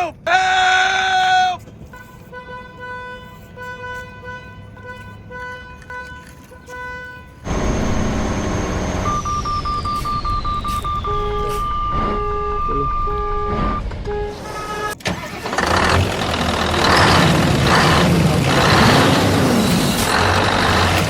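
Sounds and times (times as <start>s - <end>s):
horn-like tone: 1.9s - 15.0s
loud rumbling engine-like noise: 7.5s - 12.5s, 13.5s - 21.0s
fast beeps: 7.8s - 14.8s
whistle falling in pitch: 9.0s - 15.0s.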